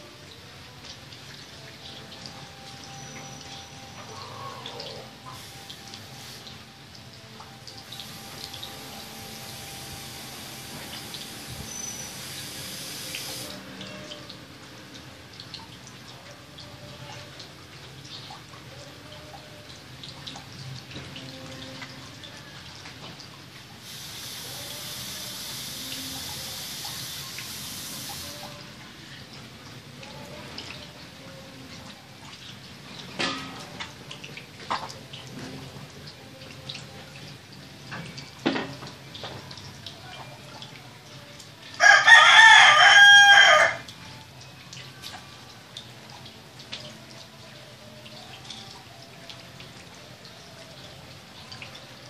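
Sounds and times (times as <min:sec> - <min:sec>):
steady high hiss: 0:05.2 - 0:14.0, 0:23.8 - 0:29.1
rooster crowing: 0:41.8 - 0:43.9.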